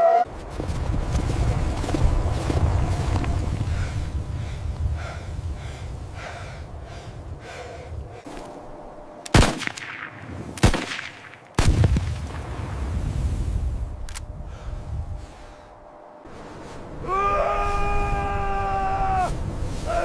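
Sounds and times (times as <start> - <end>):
rifle shots: 9.3 - 12.1.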